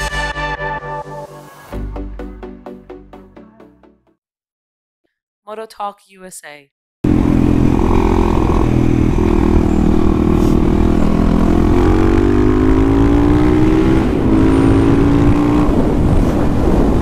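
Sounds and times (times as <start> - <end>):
motorcycle engine accelerating: 7.0 - 17.0.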